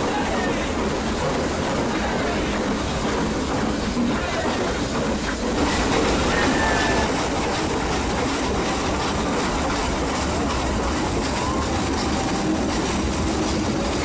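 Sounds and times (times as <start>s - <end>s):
train carriages rumbling on track: 0.0s - 14.0s.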